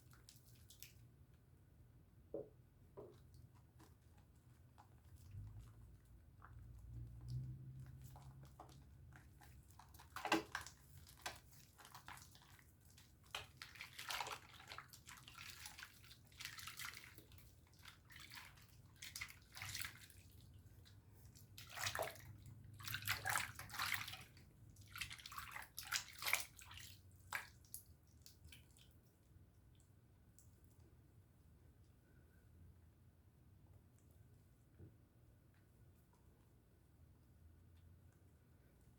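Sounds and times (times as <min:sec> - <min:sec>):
soap lathering wet squishing: 0:00.0 - 0:01.6, 0:02.7 - 0:31.2.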